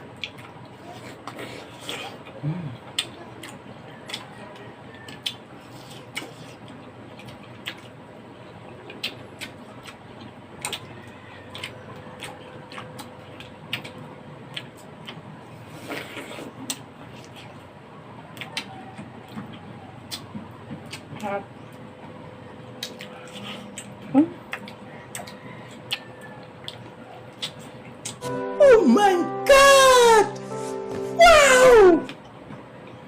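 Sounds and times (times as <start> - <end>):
mouth smacking while eating: 0.1 - 8.0, 8.8 - 17.6, 18.3 - 21.2, 22.7 - 28.2.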